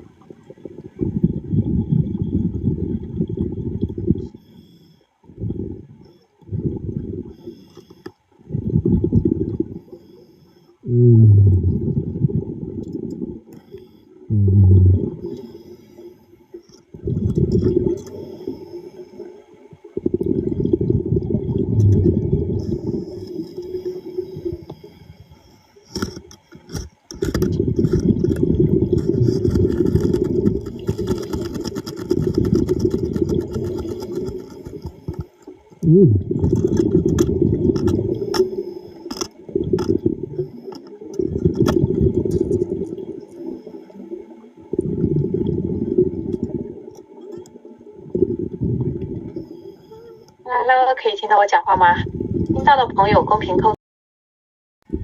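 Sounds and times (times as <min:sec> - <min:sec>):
diver exhaling bubbles underwater: 0:00.0 - 0:04.4, 0:05.3 - 0:07.6, 0:08.4 - 0:10.0, 0:10.8 - 0:13.6, 0:14.2 - 0:15.7, 0:16.9 - 0:18.6, 0:19.2 - 0:24.8, 0:27.3 - 0:50.0, 0:52.0 - 0:52.7
muffled hums: 0:00.0 - 0:53.8.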